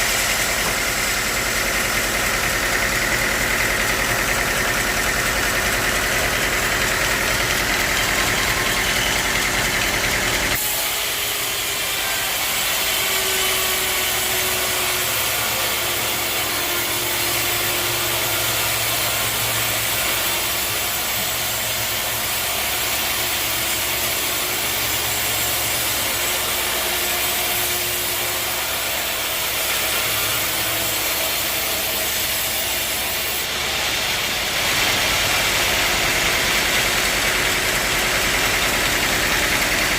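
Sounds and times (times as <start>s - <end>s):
sawmill machinery motor hum: 0.0s - 39.9s.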